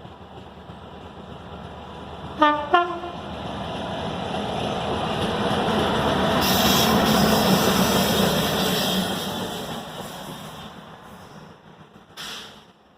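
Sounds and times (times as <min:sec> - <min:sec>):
diesel locomotive engine: 0:00.0 - 0:12.9
hiss: 0:06.4 - 0:11.5, 0:12.2 - 0:12.7.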